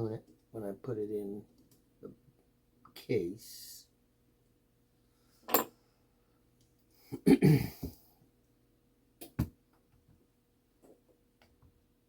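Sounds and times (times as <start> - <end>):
person coughing: 7.1 - 8.0.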